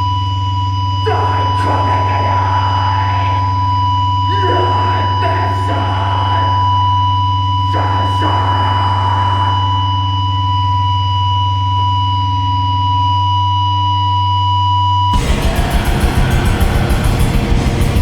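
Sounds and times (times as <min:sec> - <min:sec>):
low electronic hum: 0:15.2 - 0:18.0.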